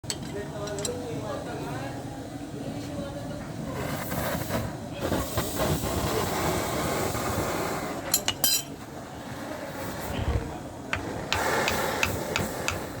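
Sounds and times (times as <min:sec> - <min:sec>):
steady noisy background: 0:00.0 - 0:13.0
metal clinking on metal: 0:08.2 - 0:08.8.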